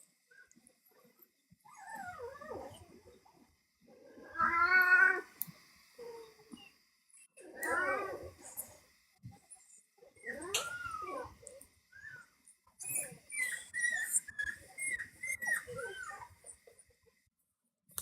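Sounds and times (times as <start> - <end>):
dog whining: 1.7 - 2.9, 10.2 - 16.4.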